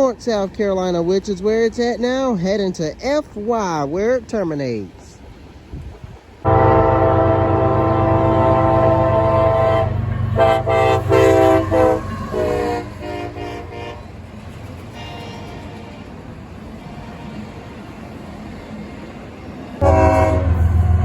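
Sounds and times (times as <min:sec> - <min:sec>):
locomotive air horn blasts: 0:06.4 - 0:14.2, 0:19.8 - 0:21.0
deep engine rumble: 0:06.4 - 0:15.0, 0:19.8 - 0:21.0.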